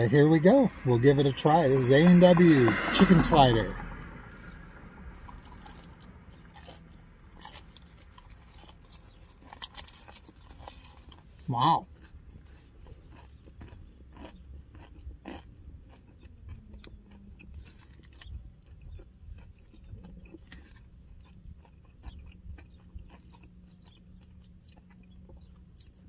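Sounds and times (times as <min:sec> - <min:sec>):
steady low rumble: 0:00.0 - 0:11.2
person chewing fried chicken: 0:05.2 - 0:26.0.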